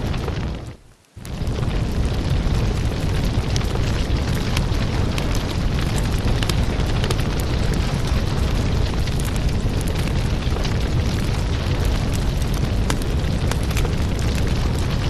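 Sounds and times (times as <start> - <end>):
fire rumbling: 0.0 - 15.0
firewood crackling and popping: 0.0 - 15.0.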